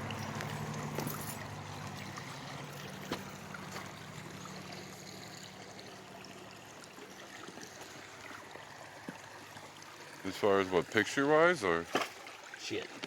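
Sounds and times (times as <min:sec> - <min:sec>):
stream water running: 0:00.0 - 0:13.0.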